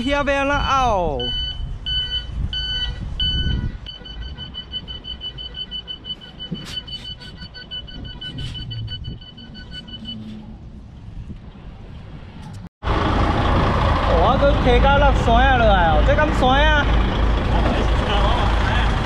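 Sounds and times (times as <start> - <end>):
truck warning beeper: 1.1 - 10.4
low engine rumble: 4.3 - 19.0.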